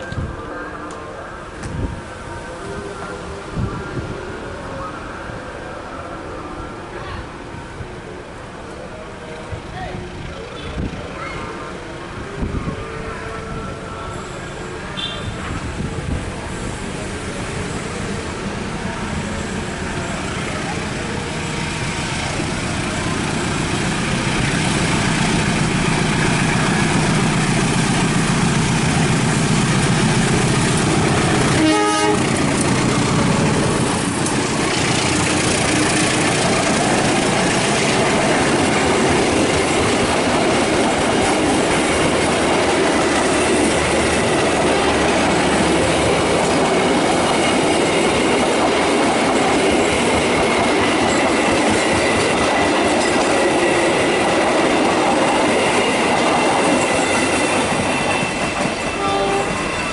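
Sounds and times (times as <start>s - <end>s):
train rumble and wheel clatter: 0.0s - 59.9s
horn-like tone: 12.5s - 15.5s, 31.5s - 32.3s, 58.2s - 59.9s.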